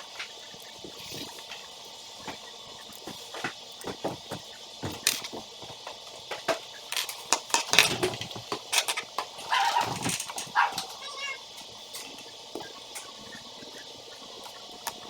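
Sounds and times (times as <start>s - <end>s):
small hard parts clattering: 3.4s - 12.3s.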